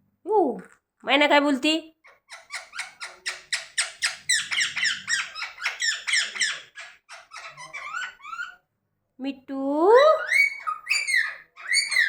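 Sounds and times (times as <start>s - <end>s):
parrot shrill squeaky calls: 2.0s - 8.6s, 10.2s - 12.0s.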